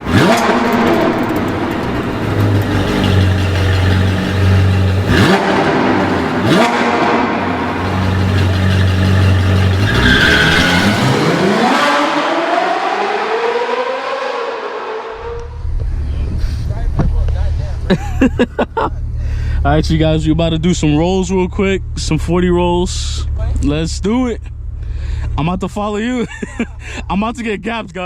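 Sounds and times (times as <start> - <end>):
sports car exhaust revving: 0.0 - 14.0.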